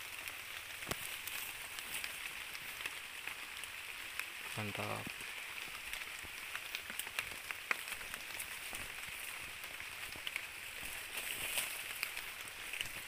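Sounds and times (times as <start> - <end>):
small crackles and ticks: 0.0 - 13.0.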